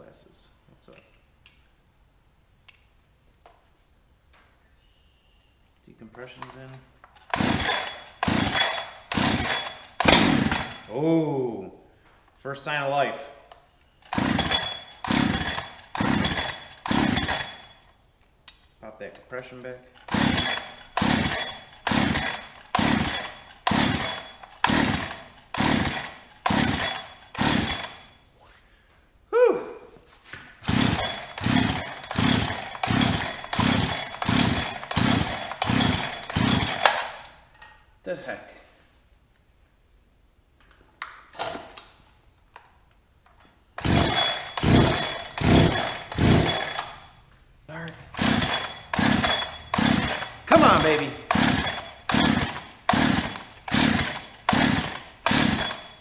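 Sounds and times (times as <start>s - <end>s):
chainsaw pull-cord starter rasps: 6.3s - 11.0s, 14.0s - 18.0s, 20.0s - 28.2s, 30.6s - 37.4s, 43.8s - 47.2s, 47.8s - 56.0s.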